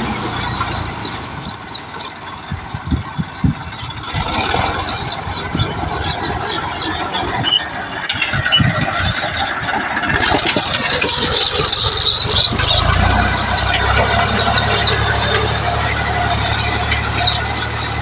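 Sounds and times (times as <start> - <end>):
tractor engine running: 0.0 - 18.0
high-pitched squeals: 3.7 - 18.0.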